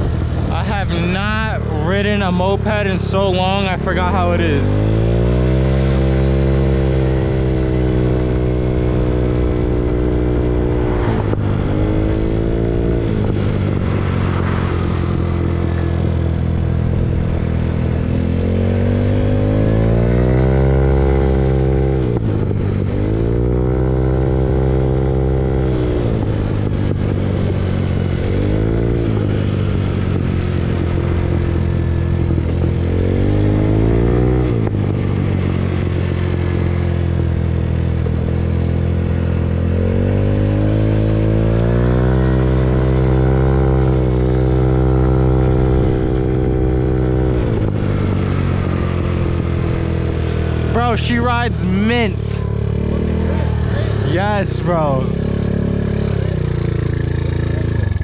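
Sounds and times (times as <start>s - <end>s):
wind rumble on microphone: 0.0s - 0.8s, 6.5s - 20.2s, 43.8s - 50.6s
moped engine revving: 0.0s - 58.0s.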